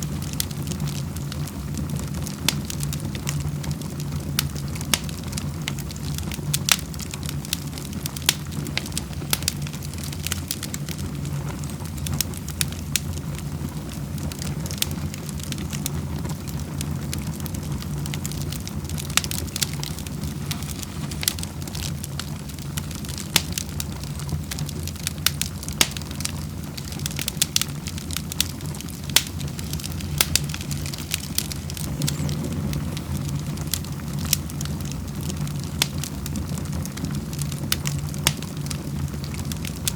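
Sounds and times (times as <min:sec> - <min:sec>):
wood fire crackling: 0:00.0 - 0:39.9
steady low rumble: 0:25.6 - 0:39.6.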